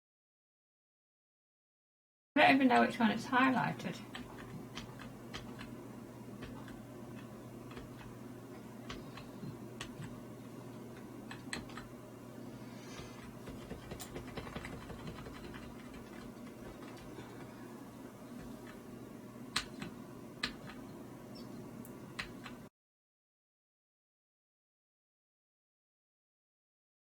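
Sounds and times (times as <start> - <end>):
steady low hum: 2.4 - 22.7
computer keys clicking: 4.1 - 5.8, 6.4 - 8.2, 8.8 - 10.2, 10.8 - 12.0, 13.2 - 17.5, 19.5 - 22.6.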